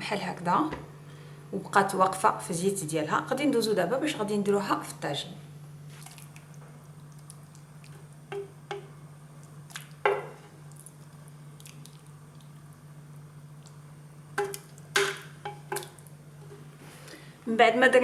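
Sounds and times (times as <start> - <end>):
low steady hum: 0.0 - 18.0
soft wet squelches: 5.8 - 17.5
spoon knocking and scraping dish: 8.3 - 8.9.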